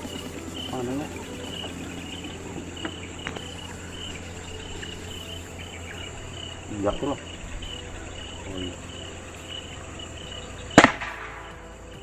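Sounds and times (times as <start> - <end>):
crickets and insects chirping: 0.0 - 12.0
gunshot: 10.8 - 11.6.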